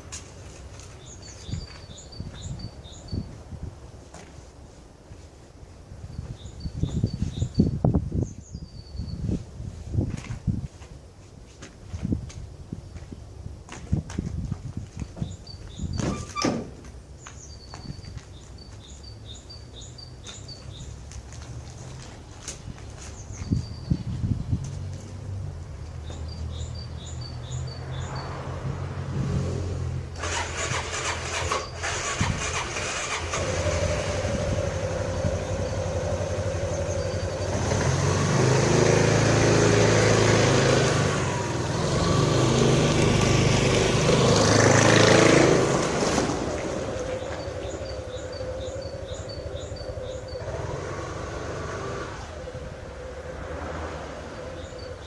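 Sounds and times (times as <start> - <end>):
motorcycle engine idling and revving: 20.3 - 55.0.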